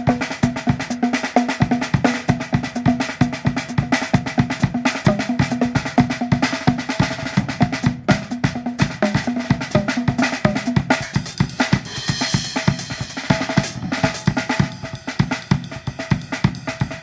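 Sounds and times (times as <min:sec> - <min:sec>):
cymbal wash: 0:11.9 - 0:15.7.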